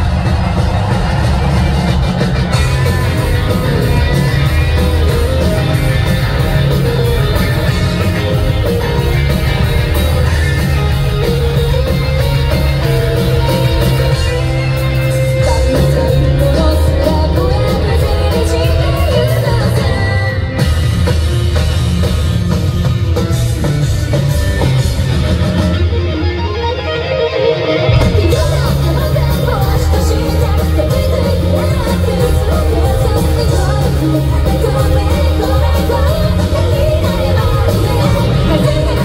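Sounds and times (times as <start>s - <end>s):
live rock band playing: 0.0s - 39.0s
woman singing: 15.2s - 20.6s, 28.0s - 39.0s.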